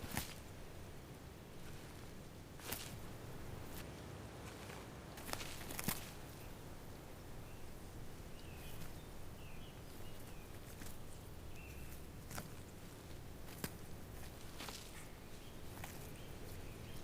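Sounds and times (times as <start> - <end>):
low background rumble: 0.0 - 17.0
soft bird chirps: 5.3 - 17.0.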